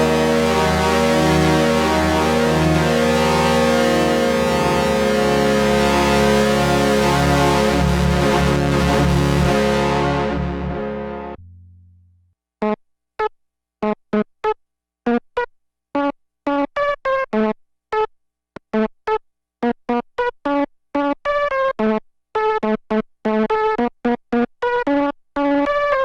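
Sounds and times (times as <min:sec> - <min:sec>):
held synthesizer sound: 0:00.0 - 0:12.0
staccato synthesizer notes: 0:00.0 - 0:12.1.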